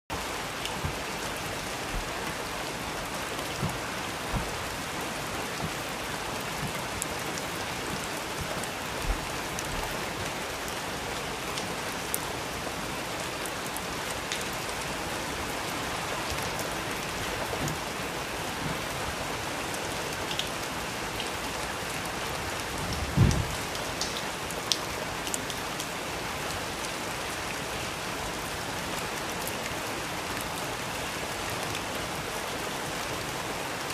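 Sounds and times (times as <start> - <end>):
steady rain: 0.1 - 33.9
raindrop hits: 0.2 - 10.4, 22.8 - 24.2
heavy low thump: 0.8 - 5.8, 23.1 - 23.6.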